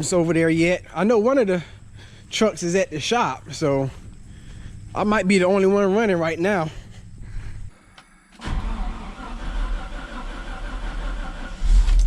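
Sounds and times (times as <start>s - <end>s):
truck engine running: 0.0s - 7.7s.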